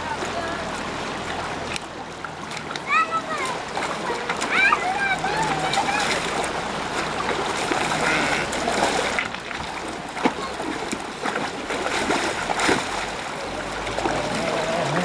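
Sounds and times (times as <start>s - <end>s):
stream rushing: 0.0s - 15.0s
water splashing: 0.0s - 15.0s.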